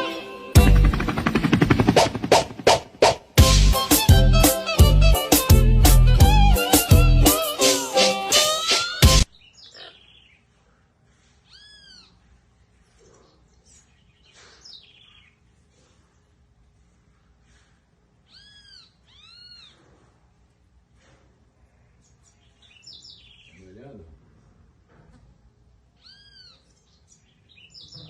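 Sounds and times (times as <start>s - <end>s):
faint animal calls: 11.3s - 12.2s, 18.2s - 20.2s, 26.0s - 26.7s.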